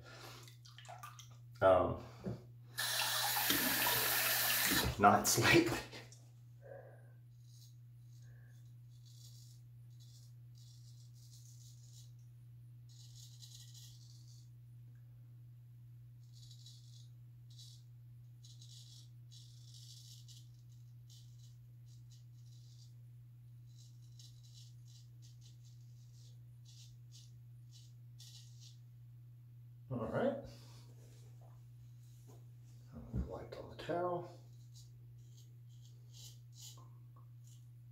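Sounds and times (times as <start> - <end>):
steady low hum: 4.9 - 37.9
razor scraping stubble: 23.7 - 28.8, 34.5 - 37.7.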